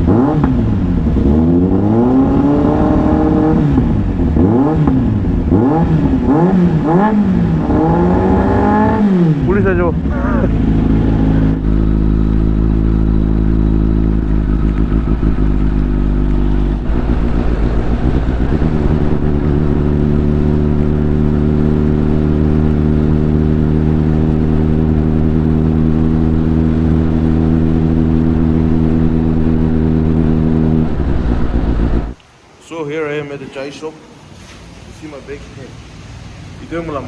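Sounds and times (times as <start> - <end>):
motorcycle engine running: 0.0 - 32.2.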